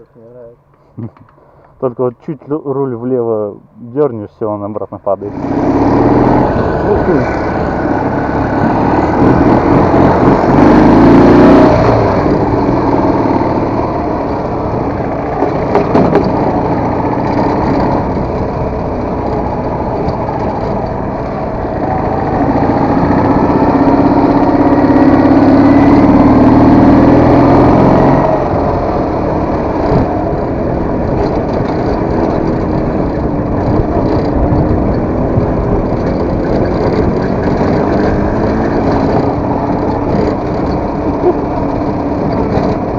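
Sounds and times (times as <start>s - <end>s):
motorcycle engine revving: 5.3s - 42.9s.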